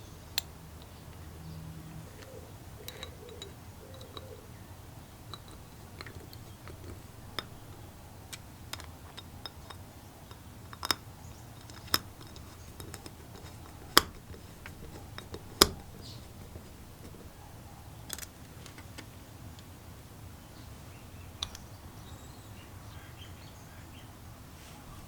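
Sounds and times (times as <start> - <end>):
tools clicking on workbench: 2.1 - 4.5, 5.2 - 19.1, 21.4 - 21.8.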